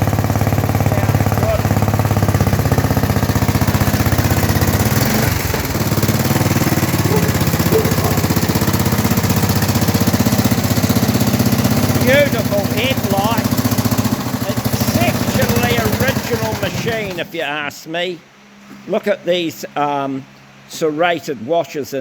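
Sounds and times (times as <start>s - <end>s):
single-cylinder engine running: 0.0s - 17.5s.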